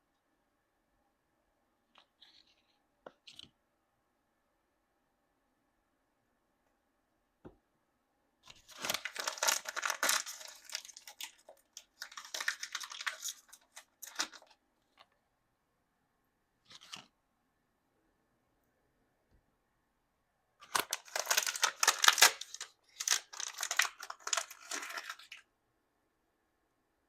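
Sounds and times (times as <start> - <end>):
plastic packaging tearing and crinkling: 8.5 - 14.5, 20.6 - 25.4.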